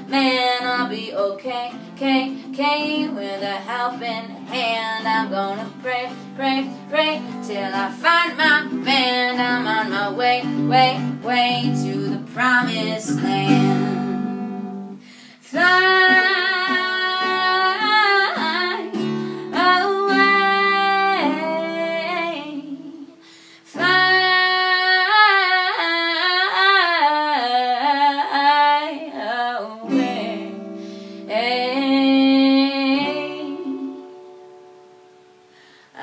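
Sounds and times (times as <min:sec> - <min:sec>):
strummed acoustic guitar: 0:00.0 - 0:22.4, 0:29.8 - 0:31.8
woman singing wordless melody: 0:00.0 - 0:35.1.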